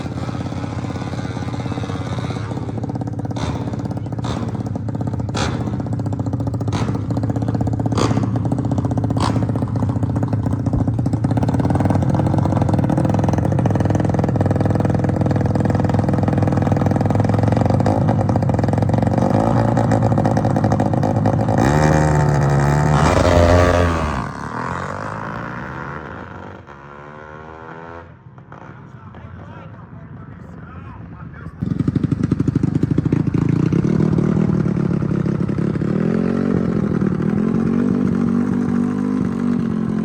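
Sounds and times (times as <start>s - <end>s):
motorcycle engine revving: 0.0s - 30.4s, 31.2s - 40.0s.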